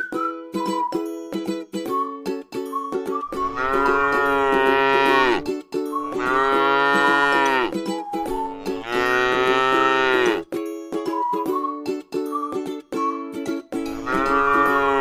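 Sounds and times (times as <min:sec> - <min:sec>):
plucked-string music: 0:00.0 - 0:15.0
cow mooing: 0:03.4 - 0:05.4, 0:06.1 - 0:07.7, 0:08.6 - 0:10.4, 0:14.0 - 0:15.0.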